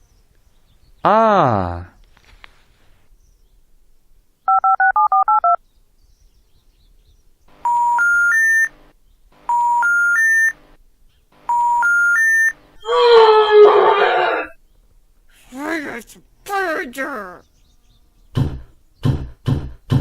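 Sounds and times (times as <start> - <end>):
touch-tone keypad beeps: 4.5 - 5.6, 7.7 - 8.7, 9.5 - 10.5, 11.5 - 12.5
loud voiced exclamation: 12.9 - 14.6, 15.4 - 17.4.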